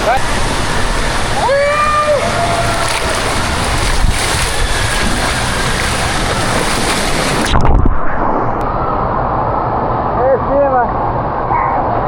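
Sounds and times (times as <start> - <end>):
rushing water din: 0.0 - 9.8.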